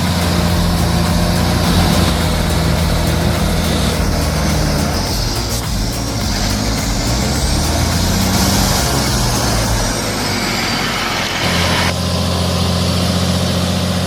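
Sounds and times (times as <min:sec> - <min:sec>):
diesel truck engine under load: 0:00.0 - 0:14.0.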